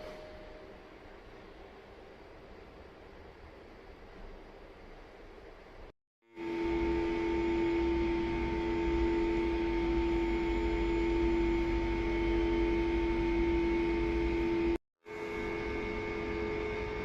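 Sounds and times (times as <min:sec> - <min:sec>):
railcar equipment humming: 0:06.4 - 0:17.0.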